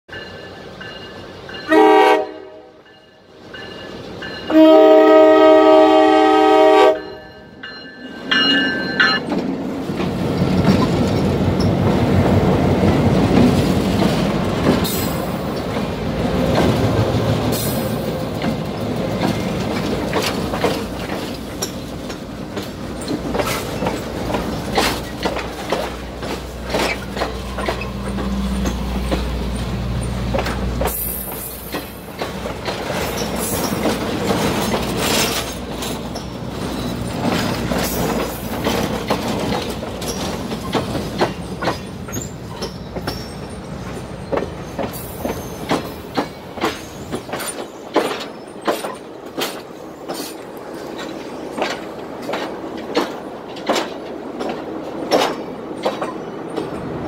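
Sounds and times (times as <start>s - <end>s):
train rumbling past: 0.1s - 57.0s
locomotive horn blasts: 1.7s - 2.8s, 4.5s - 7.4s
wheels clacking over rail joints: 7.6s - 57.0s.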